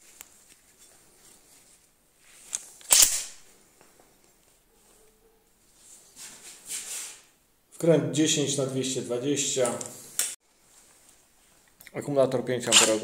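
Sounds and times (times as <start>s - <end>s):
rustling: 0.0s - 7.4s, 9.6s - 11.8s
sharp snap: 2.8s - 3.4s.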